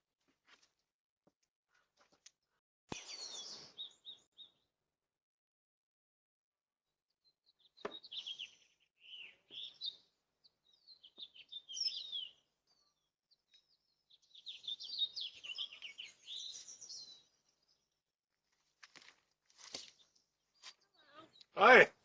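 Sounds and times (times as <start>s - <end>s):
small songbird chirping: 2.9s - 4.7s, 7.2s - 18.0s.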